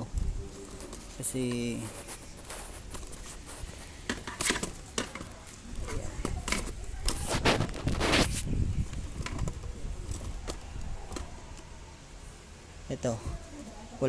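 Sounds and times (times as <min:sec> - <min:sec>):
parts scraping: 0:00.0 - 0:12.5
scooter parts clicking and knocking: 0:04.0 - 0:07.2, 0:08.9 - 0:11.6.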